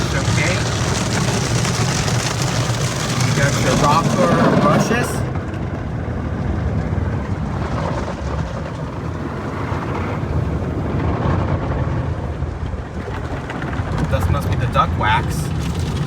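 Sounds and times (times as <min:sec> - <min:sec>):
car wash brushes spinning: 0:00.0 - 0:05.4.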